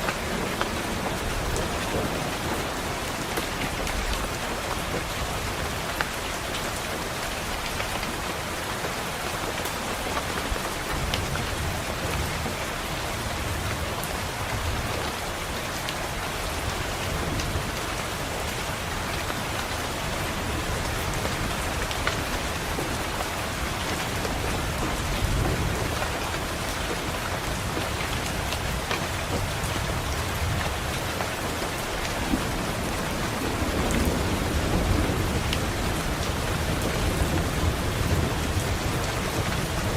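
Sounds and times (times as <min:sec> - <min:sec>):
low thunder rumbling: 0:00.0 - 0:05.8, 0:20.0 - 0:39.9
heavy rain on window: 0:00.0 - 0:39.9.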